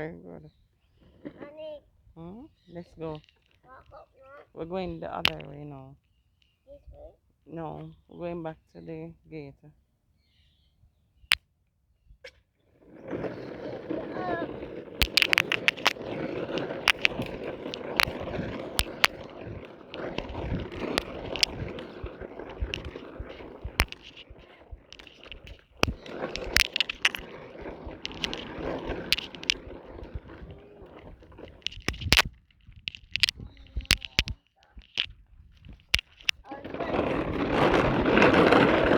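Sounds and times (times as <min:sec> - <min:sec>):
plastic wheels rolling over rough ground: 0:00.0 - 0:06.6, 0:12.6 - 0:38.9
sharp clicks and knocks: 0:15.0 - 0:36.4.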